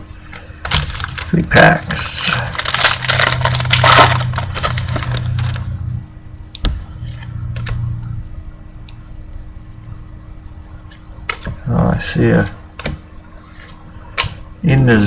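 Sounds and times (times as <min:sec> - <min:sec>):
cards clicking and rustling: 0:00.3 - 0:05.7
foil wrapper tearing and crinkling: 0:00.7 - 0:05.7.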